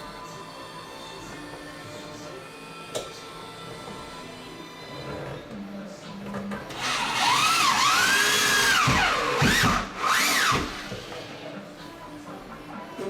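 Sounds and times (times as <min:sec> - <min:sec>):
cordless drill motor whining: 0:06.7 - 0:11.2.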